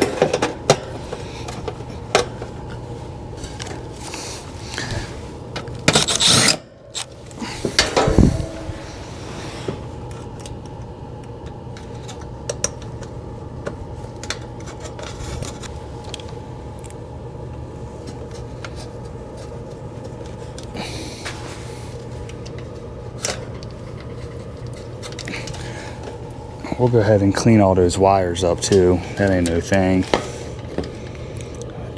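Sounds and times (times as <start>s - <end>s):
low mechanical hum: 0.0s - 31.9s.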